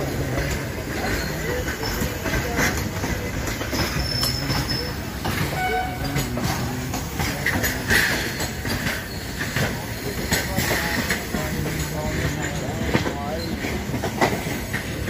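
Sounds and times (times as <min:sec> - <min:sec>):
train running noise: 0:00.0 - 0:15.0
wheels clattering over rail joints: 0:00.0 - 0:15.0
high wheel squeals: 0:03.2 - 0:10.5.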